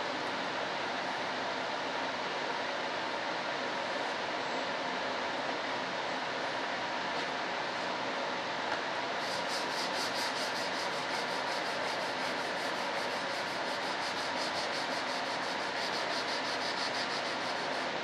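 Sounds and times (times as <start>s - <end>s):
sandpaper rubbing back and forth: 9.2s - 17.9s
steady hiss: 9.2s - 18.0s.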